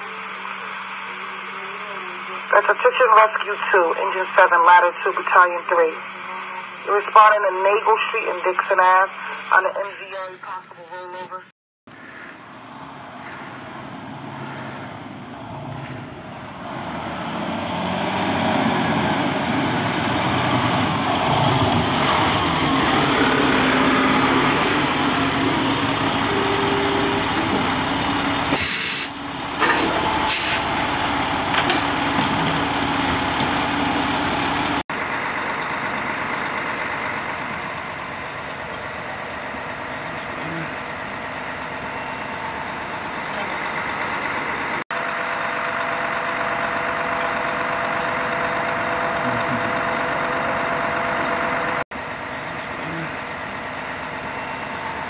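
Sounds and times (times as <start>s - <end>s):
diesel engine running: 0.0s - 55.0s
air brakes hissing: 28.5s - 31.2s.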